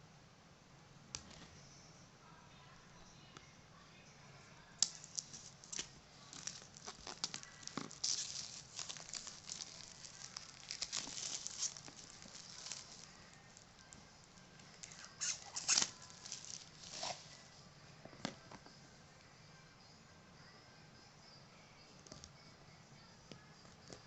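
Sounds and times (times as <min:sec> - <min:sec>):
packaging crinkling and rustling: 0:04.8 - 0:13.9, 0:14.6 - 0:17.5.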